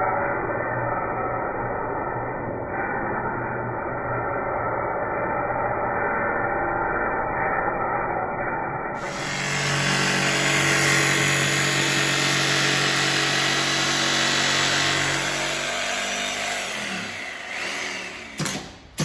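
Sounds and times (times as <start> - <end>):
power tool on steel: 9.0 - 19.0.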